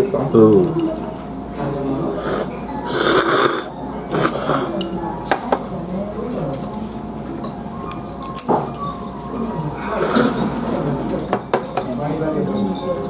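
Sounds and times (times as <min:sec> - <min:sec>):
chopsticks and dishes clinking: 0:00.4 - 0:01.3, 0:02.2 - 0:05.1, 0:07.4 - 0:09.0, 0:09.7 - 0:13.0.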